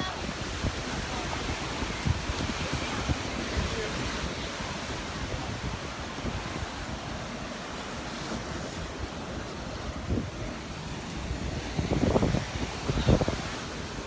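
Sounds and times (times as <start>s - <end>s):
surf washing onto beach: 0.0s - 14.0s
wind rumbling on microphone: 0.0s - 14.0s.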